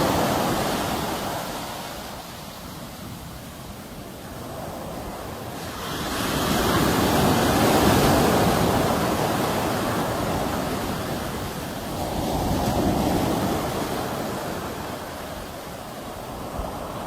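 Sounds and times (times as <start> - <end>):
sea waves breaking on shore: 0.0 - 17.0.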